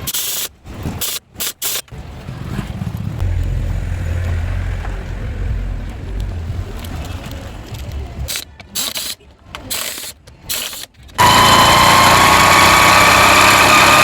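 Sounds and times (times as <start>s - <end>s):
car engine rumbling: 2.0s - 8.3s.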